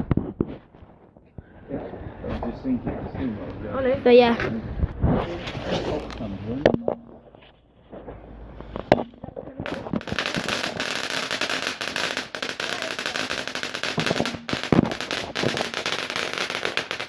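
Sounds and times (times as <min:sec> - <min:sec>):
firework crackling: 0:04.9 - 0:17.0.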